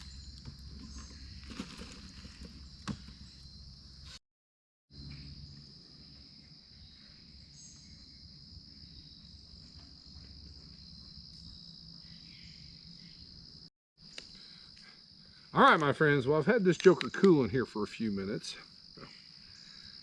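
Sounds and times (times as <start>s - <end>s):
crickets trilling: 4.9s - 20.0s.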